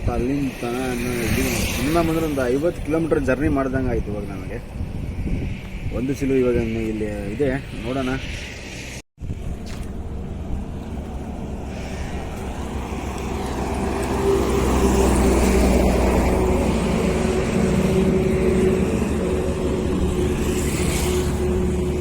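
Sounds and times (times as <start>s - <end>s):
truck engine running: 9.3s - 20.6s.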